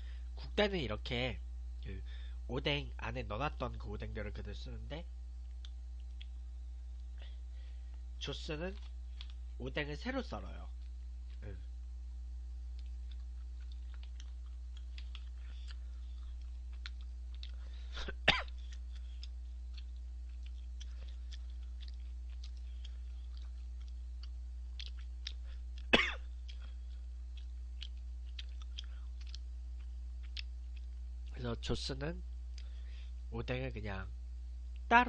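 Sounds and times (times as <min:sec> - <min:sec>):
low electrical hum: 0:00.0 - 0:35.0
man chewing: 0:05.4 - 0:08.0, 0:08.7 - 0:09.5, 0:12.6 - 0:31.4, 0:32.4 - 0:32.9.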